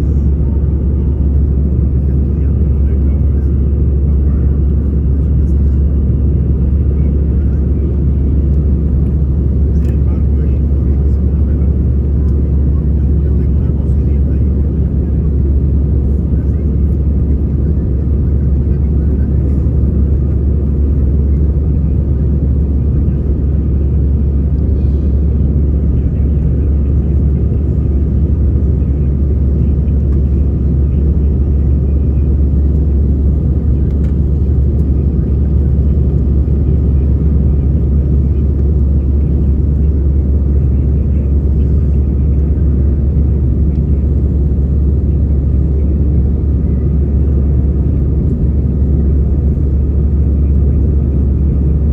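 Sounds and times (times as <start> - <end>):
aircraft cabin engine rumble: 0.0 - 51.9.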